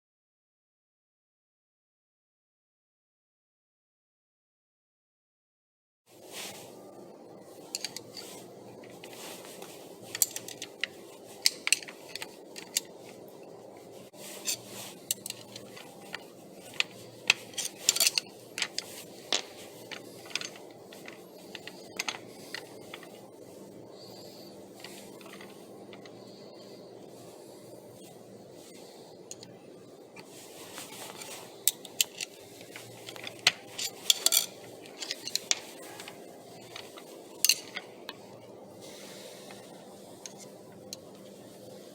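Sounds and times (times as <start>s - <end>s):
steady low hum: 6.1s - 41.9s
steel bearing parts clinking: 7.7s - 13.5s, 14.2s - 23.3s, 24.0s - 26.3s, 30.2s - 38.4s.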